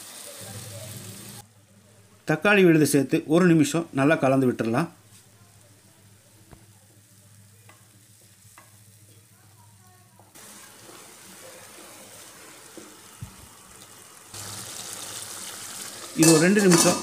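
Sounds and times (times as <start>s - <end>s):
paste sizzling in hot oil: 0.0s - 1.4s, 10.2s - 17.0s.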